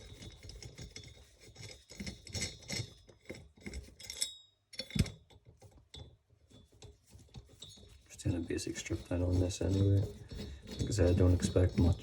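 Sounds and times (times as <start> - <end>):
tools and metal parts clinking: 0.0 - 8.1, 9.7 - 12.0
metallic ring: 4.0 - 5.0.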